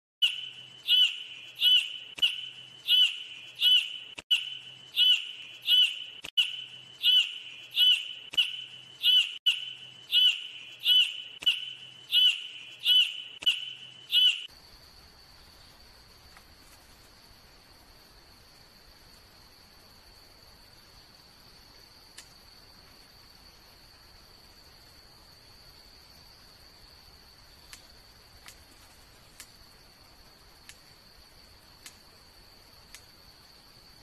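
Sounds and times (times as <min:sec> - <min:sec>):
bird calling: 0:00.2 - 0:14.5.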